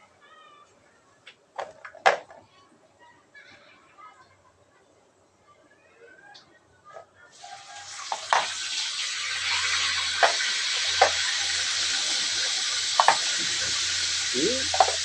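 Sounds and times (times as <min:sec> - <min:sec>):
steady hiss: 0:07.4 - 0:15.0.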